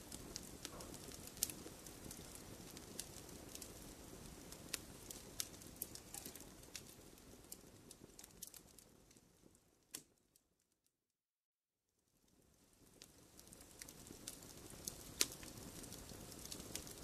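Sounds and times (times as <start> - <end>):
low rumble of burning: 0.0 - 10.3, 12.1 - 17.0
wood fire crackling and popping: 0.0 - 10.4, 12.1 - 17.0.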